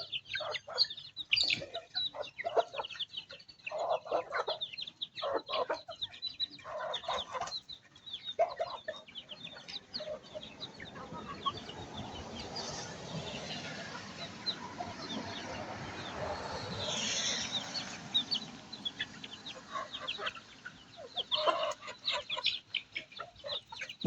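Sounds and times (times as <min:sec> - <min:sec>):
chickens clucking: 0:00.0 - 0:24.0
chicks peeping: 0:00.0 - 0:24.0.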